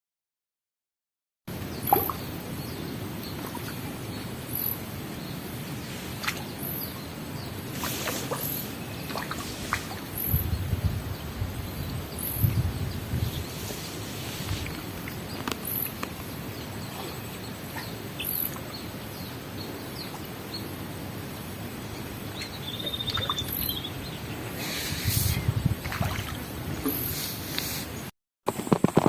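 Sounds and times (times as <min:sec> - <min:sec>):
steady hiss: 0:03.8 - 0:22.8, 0:23.4 - 0:25.7, 0:26.9 - 0:28.1
faint high chirp: 0:17.0 - 0:18.6, 0:22.3 - 0:24.1.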